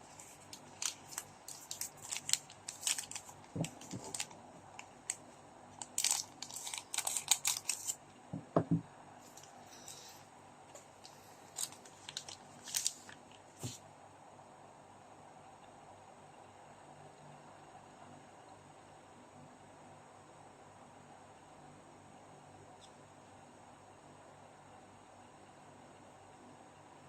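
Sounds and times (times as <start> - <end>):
foil wrappers tearing and crinkling: 0.0 - 5.2, 5.8 - 8.0, 11.5 - 13.3.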